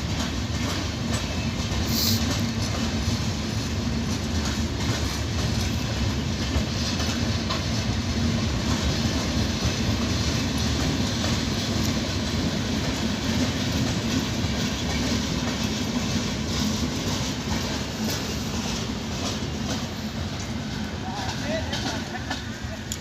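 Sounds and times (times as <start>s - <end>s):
train wheels rumbling on rails: 0.0s - 23.0s
brief high hiss: 1.8s - 2.3s.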